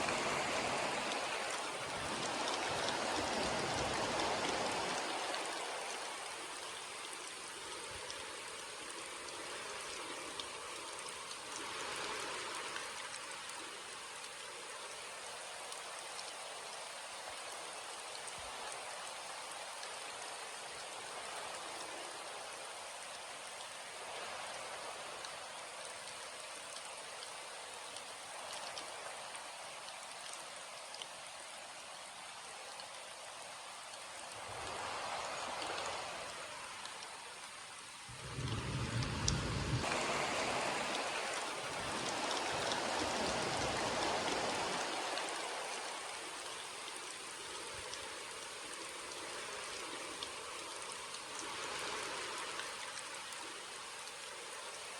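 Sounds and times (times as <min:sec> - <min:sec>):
rain hissing: 0:34.3 - 0:53.0.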